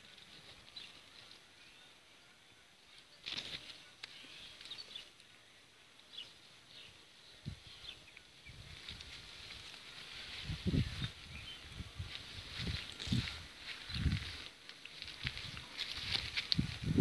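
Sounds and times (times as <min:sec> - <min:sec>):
rustling: 0:08.5 - 0:17.0.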